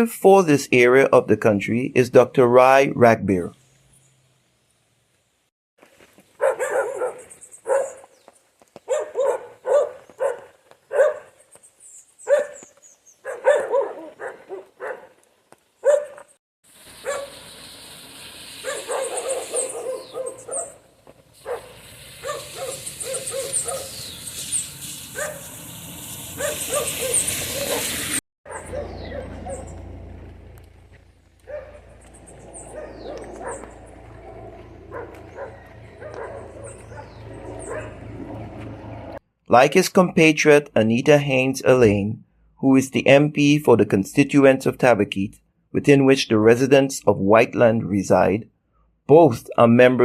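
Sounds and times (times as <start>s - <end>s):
dog barking: 6.4s - 8.1s, 8.8s - 11.4s, 12.2s - 12.6s, 13.2s - 15.2s, 15.8s - 16.2s, 17.0s - 17.4s, 18.6s - 20.8s, 21.4s - 24.0s, 25.2s - 25.4s, 26.4s - 29.7s, 31.4s - 32.0s, 32.6s - 33.8s, 34.8s - 38.0s.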